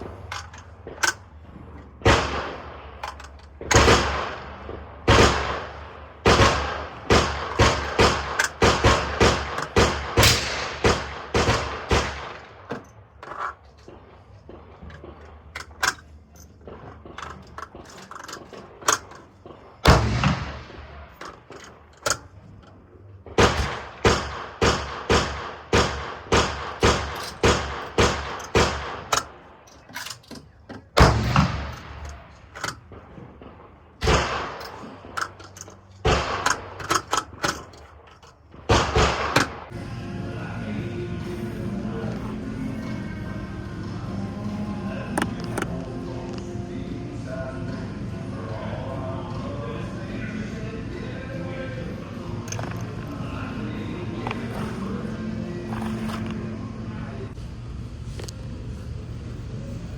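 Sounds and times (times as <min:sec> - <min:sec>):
rifle shots with echo: 0:00.0 - 0:13.1, 0:13.9 - 0:22.3, 0:23.0 - 0:29.7, 0:30.9 - 0:35.4, 0:36.0 - 0:39.8.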